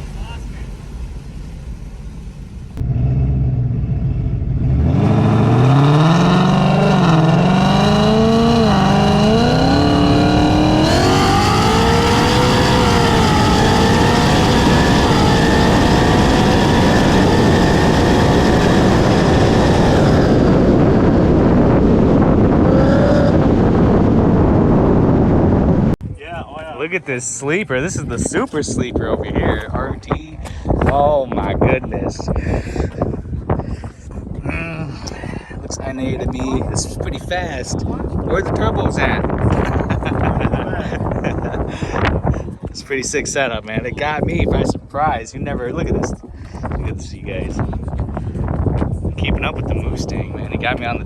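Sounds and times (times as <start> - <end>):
car engine at full throttle: 0.0 - 26.0, 32.3 - 43.0
rush of wind: 0.0 - 51.0.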